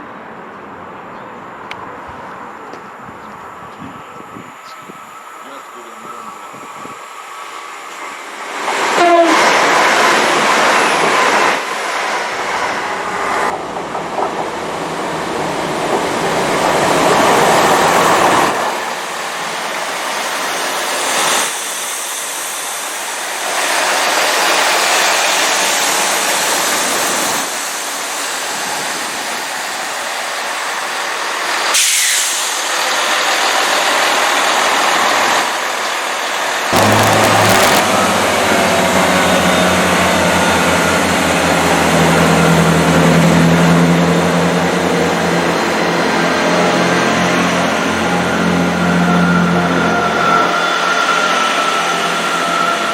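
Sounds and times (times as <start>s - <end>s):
train wheels rushing on rails: 2.0s - 52.9s.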